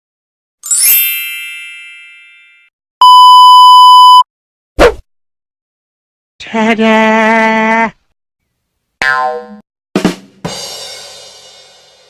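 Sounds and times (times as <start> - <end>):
bright chime ringing: 0.6 - 2.7
censor bleep: 3.0 - 4.3.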